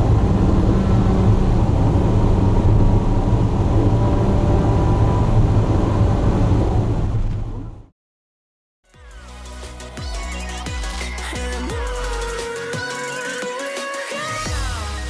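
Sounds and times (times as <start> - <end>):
car engine rumbling: 0.0 - 7.9
road noise: 0.0 - 7.9.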